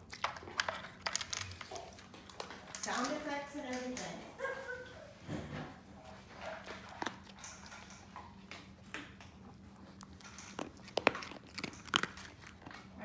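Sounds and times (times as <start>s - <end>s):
dog crunching dry kibble: 0.0s - 4.1s, 5.9s - 13.0s.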